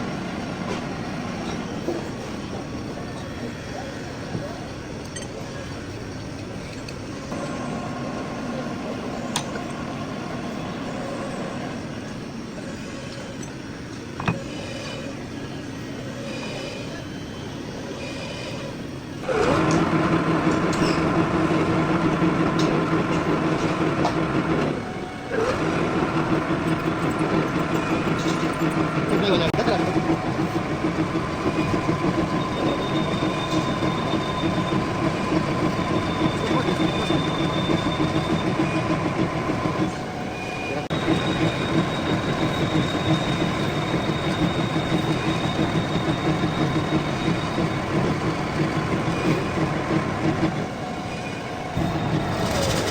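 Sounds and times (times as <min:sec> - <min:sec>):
metal lathe humming: 0:19.1 - 0:52.9.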